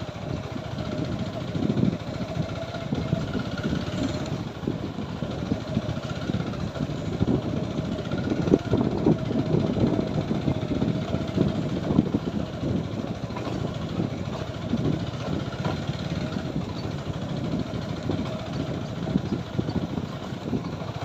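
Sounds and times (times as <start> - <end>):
motorcycle engine on rough road: 0.0 - 21.0.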